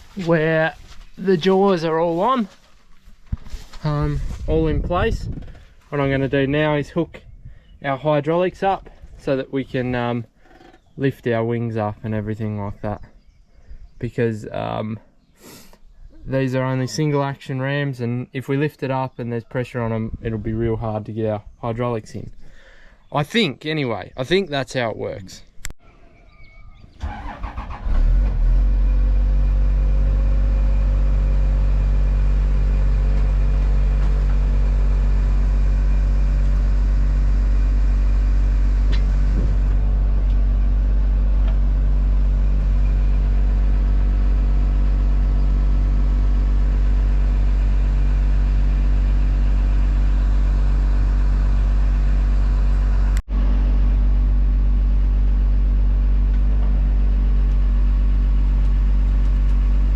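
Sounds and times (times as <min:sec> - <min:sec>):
tractor engine running: 0:27.0 - 0:59.9.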